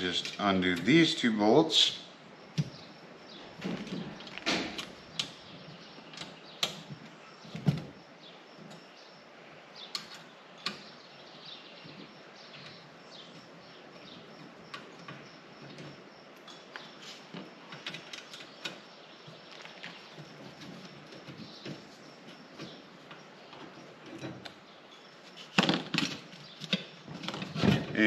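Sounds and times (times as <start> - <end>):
metal rack parts clicking and clunking: 17.3 - 18.8, 20.3 - 24.5.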